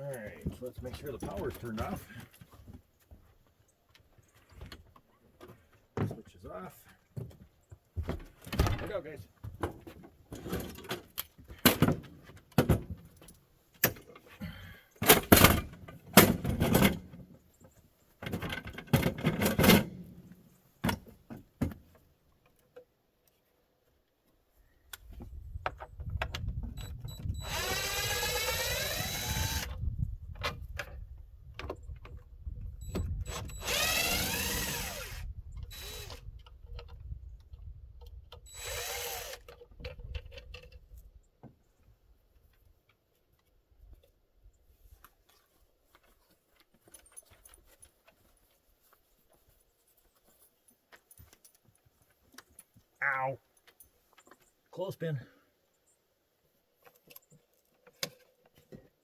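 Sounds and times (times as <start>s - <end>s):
cordless drill driving screws: 27.2s - 29.8s, 32.9s - 36.3s, 38.5s - 39.6s.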